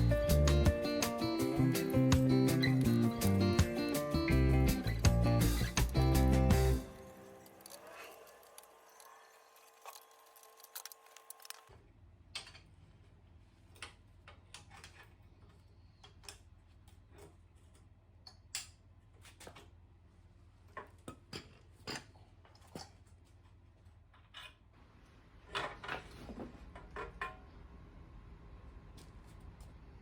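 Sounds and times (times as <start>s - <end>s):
faint background music: 0.0s - 8.1s.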